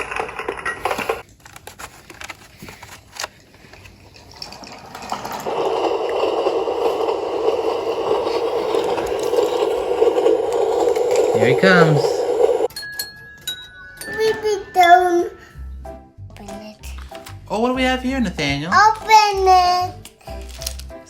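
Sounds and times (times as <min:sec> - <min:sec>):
toy train rolling rattle: 0:00.0 - 0:01.2, 0:03.6 - 0:15.3.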